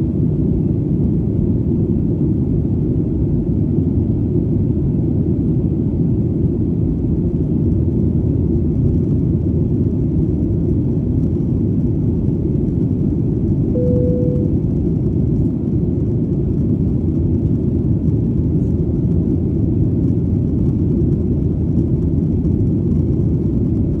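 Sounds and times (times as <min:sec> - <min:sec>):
airplane engine rumble: 0:01.1 - 0:24.0
short steady tone: 0:13.8 - 0:14.6.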